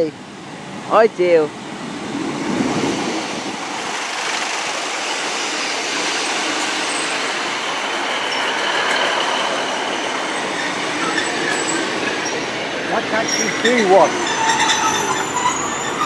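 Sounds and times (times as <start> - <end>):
train rumbling hiss: 0.0 - 16.0
train wheels squealing: 6.5 - 7.3, 8.2 - 12.5, 13.1 - 16.0.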